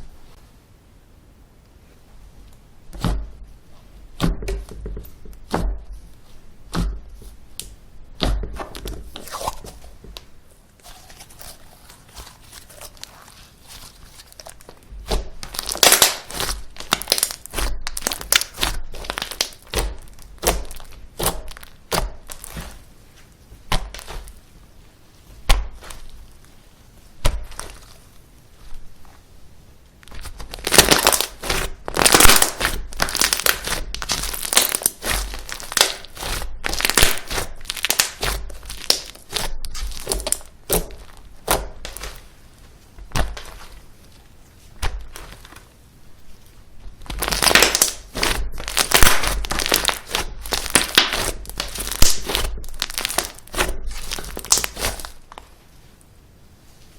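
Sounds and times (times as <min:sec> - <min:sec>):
slime crackling and popping: 0:07.5 - 0:22.9, 0:23.6 - 0:24.4, 0:25.3 - 0:28.1, 0:30.0 - 0:42.3, 0:43.0 - 0:43.8, 0:46.8 - 0:55.4.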